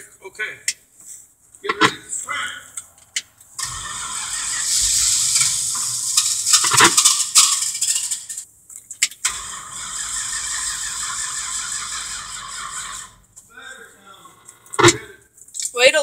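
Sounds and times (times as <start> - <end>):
truck starter cranking engine: 2.9 - 8.4, 9.1 - 15.1.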